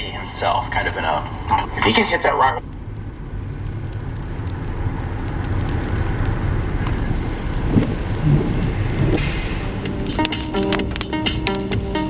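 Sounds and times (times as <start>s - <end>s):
car tyres and engine rumble: 0.0s - 12.0s
brief hiss: 9.2s - 9.8s.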